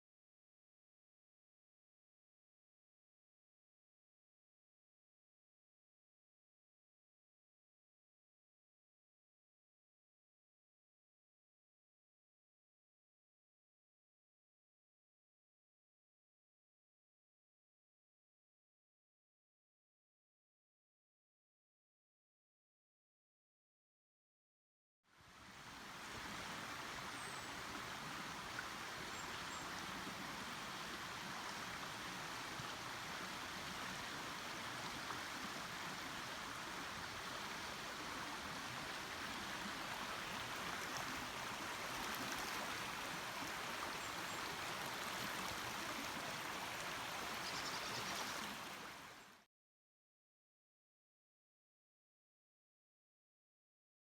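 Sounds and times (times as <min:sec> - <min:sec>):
stream water rushing: 0:25.2 - 0:49.4.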